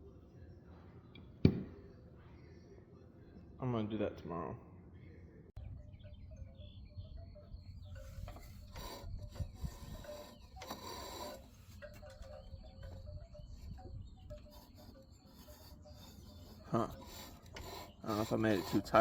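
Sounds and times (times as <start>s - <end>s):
metal scraping and rasping: 7.9s - 19.0s.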